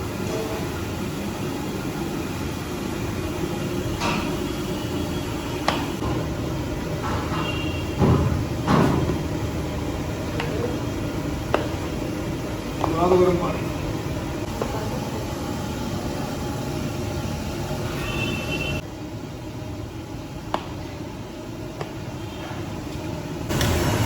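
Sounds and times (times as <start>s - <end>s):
sharp knocks and clanks: 7.0s - 9.2s.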